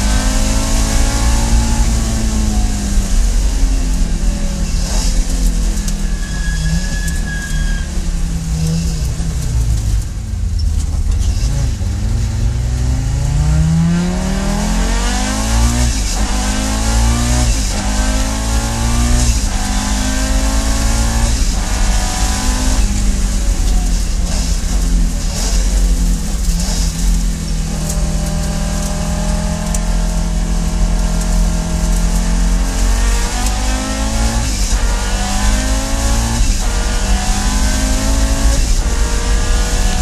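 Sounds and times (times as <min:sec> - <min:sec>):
car engine accelerating: 0:00.0 - 0:40.0.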